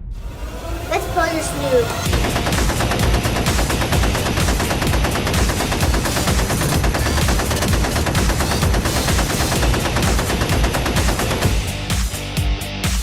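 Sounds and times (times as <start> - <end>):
deep rumble: 0.0 - 11.7
automatic gunfire: 2.1 - 11.7.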